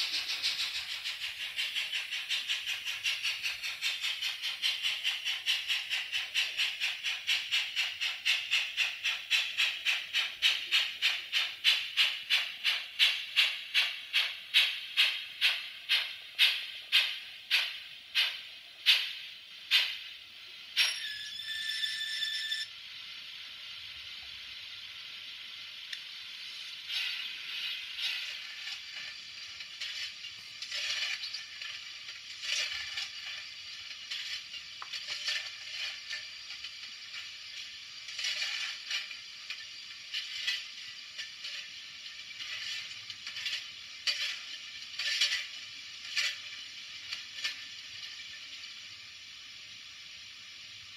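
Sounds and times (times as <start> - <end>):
hiss of steam from speaker: 0.0 - 21.1, 22.0 - 50.9
model gears and wheels clattering: 0.0 - 22.7, 26.0 - 49.1
whistle-like tone: 20.8 - 22.7.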